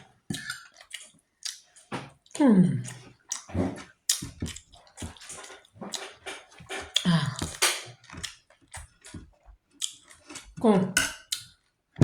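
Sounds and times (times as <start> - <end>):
wet chewing mouth sounds: 0.0 - 10.6
person humming mm: 7.0 - 7.6.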